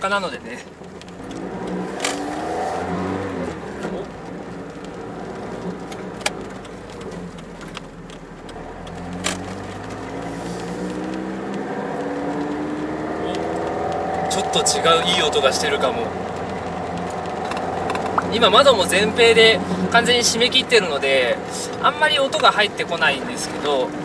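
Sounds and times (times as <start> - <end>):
car engine driving: 0.0 - 24.0
sharp clicks: 4.1 - 19.1.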